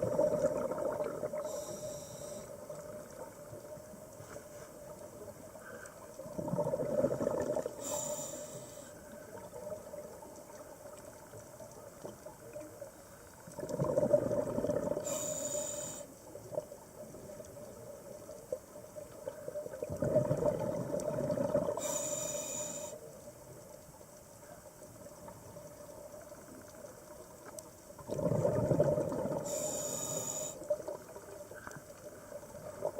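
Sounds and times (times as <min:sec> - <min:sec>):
exhaled bubbles gurgling underwater: 0:00.0 - 0:04.2, 0:04.9 - 0:24.0, 0:24.6 - 0:32.9
regulator hiss: 0:01.4 - 0:02.6, 0:07.8 - 0:09.0, 0:15.0 - 0:16.2, 0:21.8 - 0:23.1, 0:29.4 - 0:30.7.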